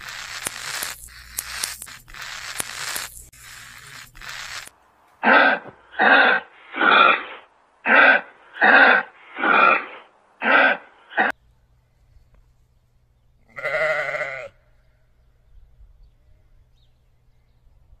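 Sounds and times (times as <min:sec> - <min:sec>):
animal calling: 0:02.8 - 0:11.3
faint low hum: 0:07.4 - 0:13.6.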